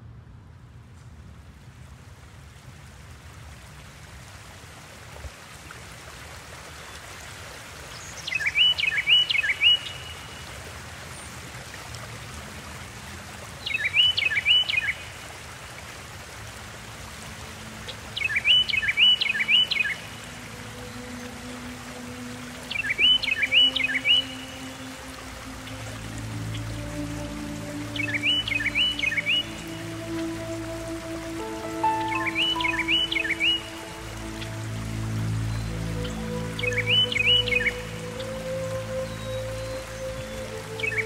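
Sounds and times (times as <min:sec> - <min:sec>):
songbird chirping phrase: 0:08.0 - 0:10.4, 0:17.7 - 0:41.0.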